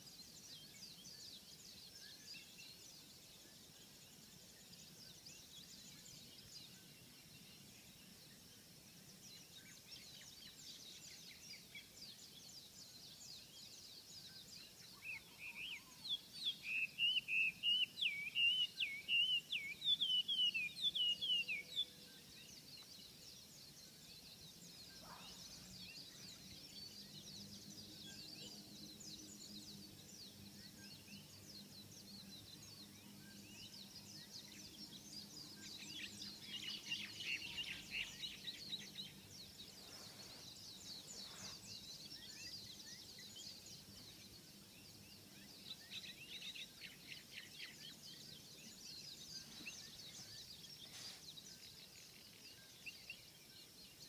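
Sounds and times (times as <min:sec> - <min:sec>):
high bird chirps and trills: 0:32.3 - 0:53.3.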